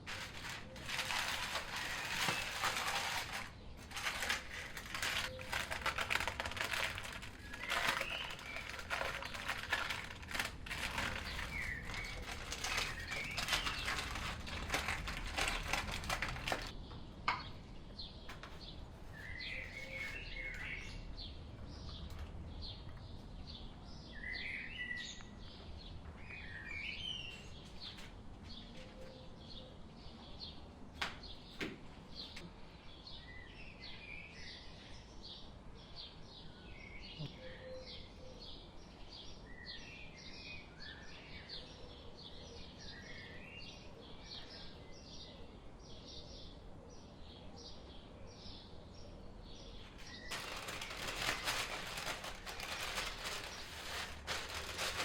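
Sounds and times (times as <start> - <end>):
clicks and rustles: 0.0 - 17.5, 49.8 - 55.0
small birds chirping: 0.0 - 55.0.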